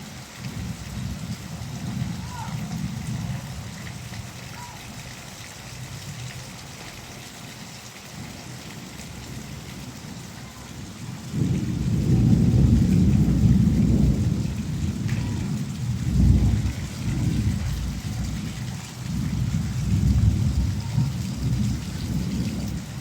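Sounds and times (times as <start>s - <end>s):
rain falling: 0.0s - 23.0s
thunder rumbling: 0.4s - 4.8s, 9.0s - 23.0s.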